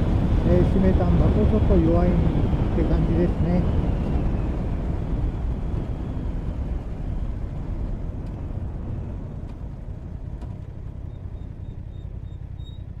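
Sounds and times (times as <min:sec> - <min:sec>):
wind noise on microphone: 0:00.0 - 0:10.3
motorcycle engine: 0:00.0 - 0:13.0.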